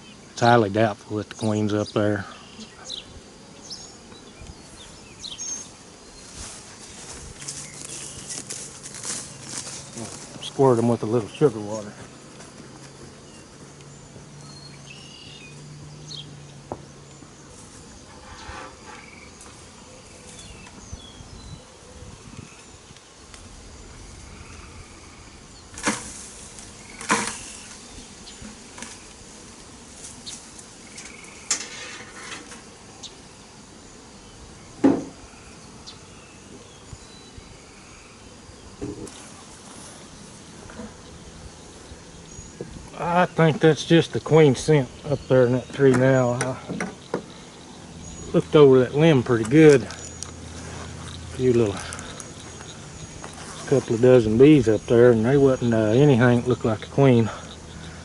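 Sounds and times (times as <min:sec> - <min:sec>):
bees buzzing: 0:00.0 - 0:58.0.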